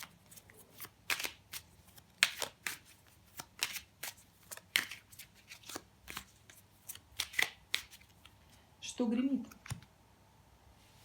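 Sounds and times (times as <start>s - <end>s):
cards snapping and slapping: 0.0s - 8.3s.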